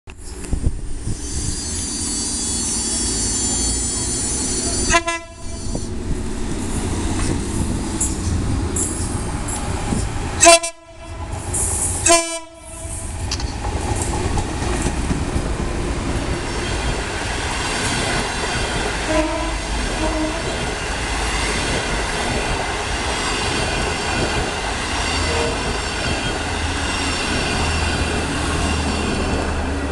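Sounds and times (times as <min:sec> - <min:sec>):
train wheels on rails: 0:00.1 - 0:29.9
locomotive horn blasts: 0:04.8 - 0:05.7, 0:10.4 - 0:13.0, 0:19.0 - 0:20.6.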